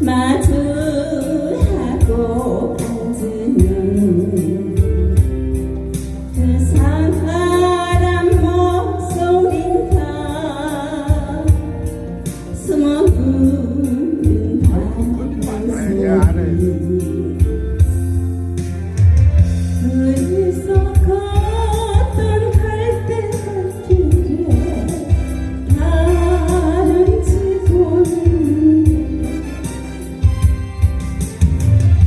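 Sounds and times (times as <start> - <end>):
pop band accompaniment: 0.0 - 32.0
person singing with vibrato: 12.6 - 18.0.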